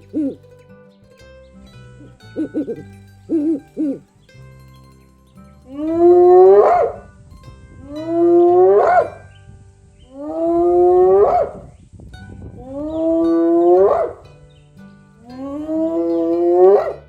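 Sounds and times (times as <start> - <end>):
animal drawn-out rising calls: 2.4 - 4.0, 5.7 - 7.1, 7.9 - 9.3, 10.1 - 11.7, 12.6 - 14.2, 15.3 - 17.0.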